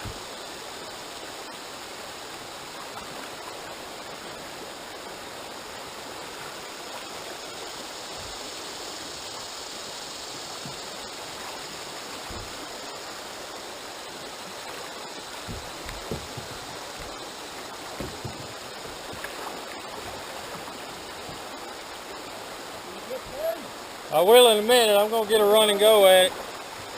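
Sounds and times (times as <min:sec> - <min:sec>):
river water rushing: 0:00.0 - 0:26.9
soft low thumps: 0:12.2 - 0:12.7, 0:15.3 - 0:19.3.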